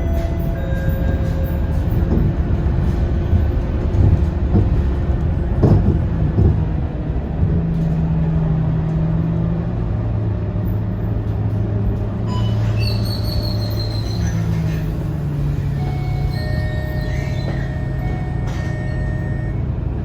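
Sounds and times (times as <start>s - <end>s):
bus diesel engine droning: 0.0s - 20.0s
knocks and rattles: 0.8s - 6.8s.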